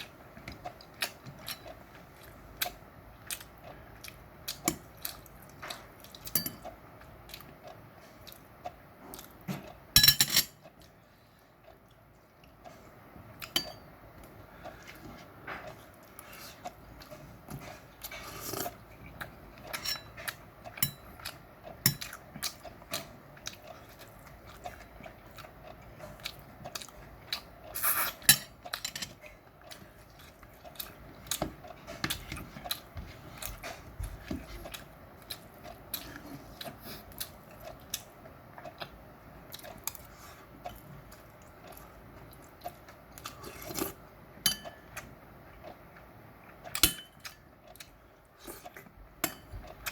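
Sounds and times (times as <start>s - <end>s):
person chewing meat: 0.0s - 10.0s, 10.6s - 49.9s
utensils clinking on dishes: 6.3s - 6.7s, 10.0s - 10.6s, 19.7s - 20.2s, 28.2s - 29.2s, 49.2s - 49.7s.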